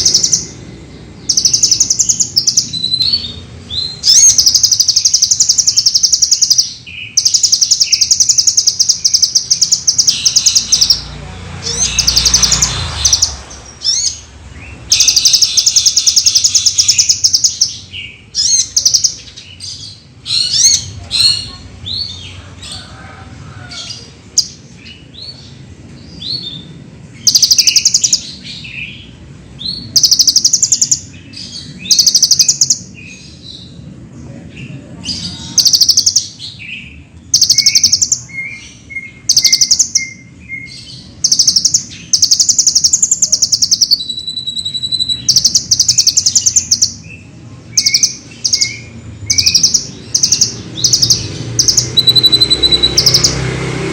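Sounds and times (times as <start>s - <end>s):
sunbird singing rapid trills: 0.0s - 22.4s, 23.8s - 33.9s, 34.6s - 53.9s.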